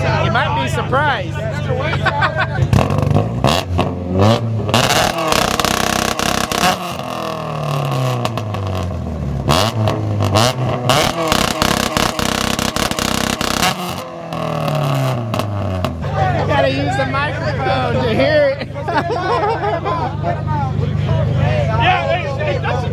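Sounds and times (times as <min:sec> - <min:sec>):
car engine revving: 0:00.0 - 0:19.7
sharp exhaust pops: 0:02.6 - 0:16.1.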